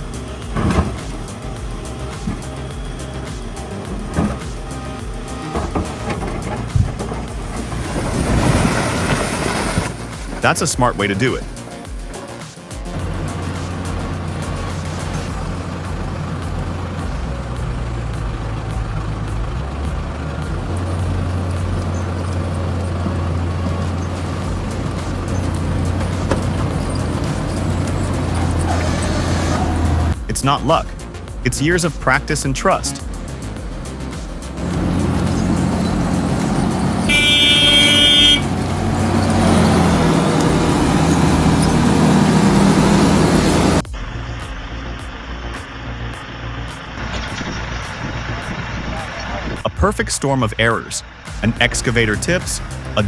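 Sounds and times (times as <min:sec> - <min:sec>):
heavy machine engine humming: 0:00.0 - 0:31.8, 0:33.0 - 0:49.8
vehicle horn toot: 0:37.0 - 0:38.5.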